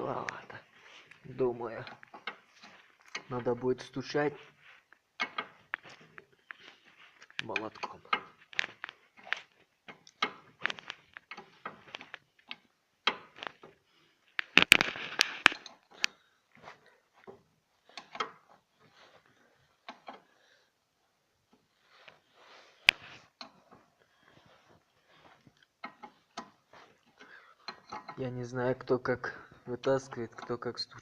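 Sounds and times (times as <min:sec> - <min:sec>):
hand tools clicking and knocking: 0:01.8 - 0:03.5, 0:04.9 - 0:13.8, 0:14.4 - 0:18.7, 0:19.8 - 0:20.4, 0:25.4 - 0:28.3.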